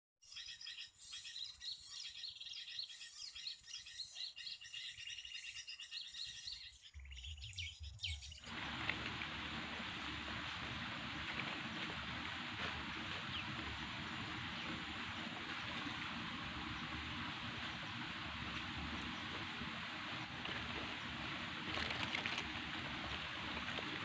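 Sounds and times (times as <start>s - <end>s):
songbirds chirping: 0.2s - 24.0s
steady hiss: 8.5s - 24.0s.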